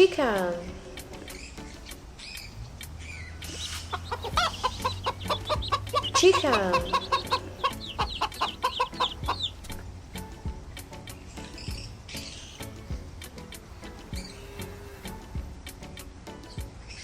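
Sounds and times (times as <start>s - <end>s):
chicken clucking: 1.0s - 10.3s.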